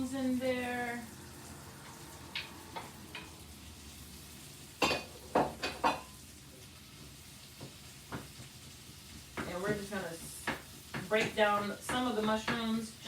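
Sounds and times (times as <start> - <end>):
vegetables sizzling: 0.0 - 13.0
utensil knocking against frying pan: 7.6 - 8.5, 9.3 - 12.8.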